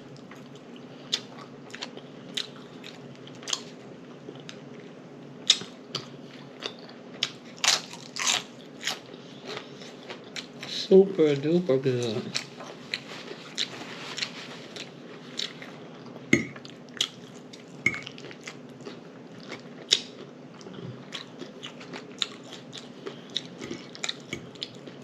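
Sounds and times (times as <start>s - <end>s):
chewing and lip smacking: 4.3s - 10.6s, 12.3s - 25.0s.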